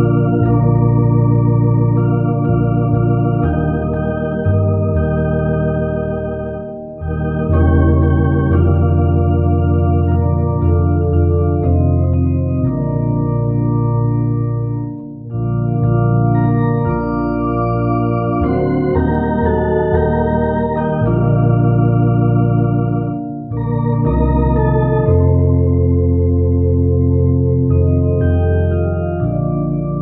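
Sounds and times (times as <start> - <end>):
organ playing slow chords: 0.0 - 30.0.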